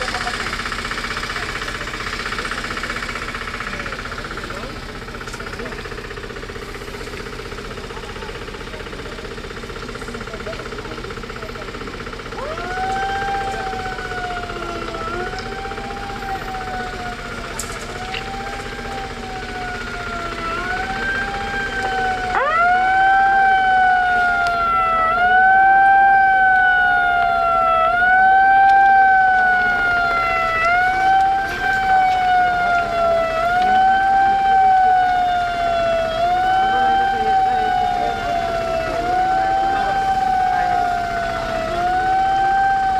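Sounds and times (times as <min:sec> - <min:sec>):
emergency siren wailing: 0:00.0 - 0:42.9
engine rumble: 0:00.0 - 0:42.9.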